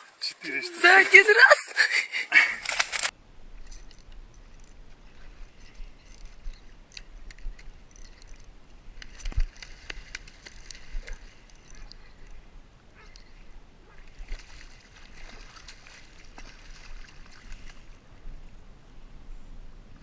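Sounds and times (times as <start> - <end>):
faint clicks and clinks: 2.6 - 12.4.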